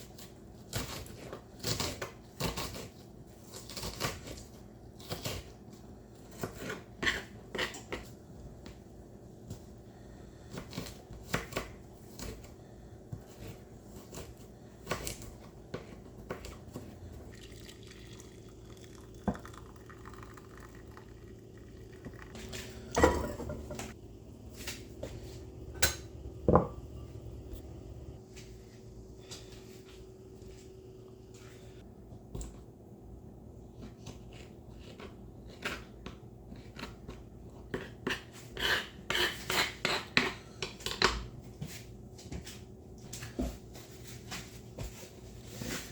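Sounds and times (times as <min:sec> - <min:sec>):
steady low hum: 0:05.8 - 0:34.8
dishes and pans clinking: 0:22.8 - 0:24.0.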